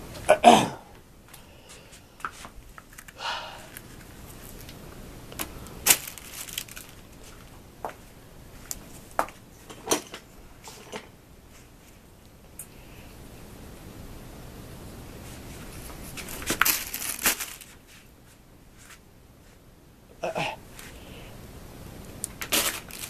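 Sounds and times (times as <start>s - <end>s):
soft rustle: 1.2s - 9.8s, 10.6s - 12.1s, 15.1s - 19.7s, 20.7s - 21.3s, 22.3s - 23.0s.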